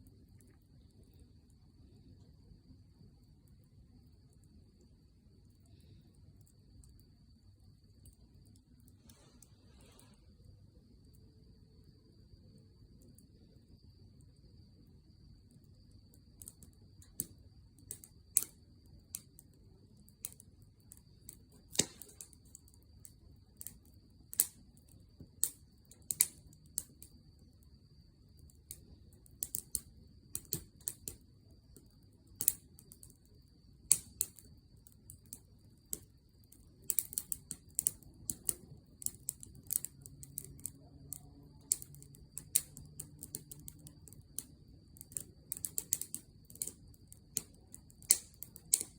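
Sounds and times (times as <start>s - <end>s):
wood fire crackling: 3.1s - 10.2s, 15.5s - 48.9s
sharp pops of fire: 16.3s - 19.4s, 20.0s - 27.2s, 28.3s - 48.9s.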